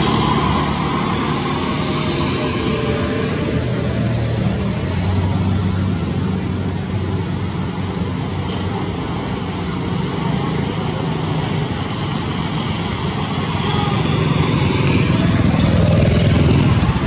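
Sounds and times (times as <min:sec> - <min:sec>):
vehicle engine running: 0:00.0 - 0:05.0.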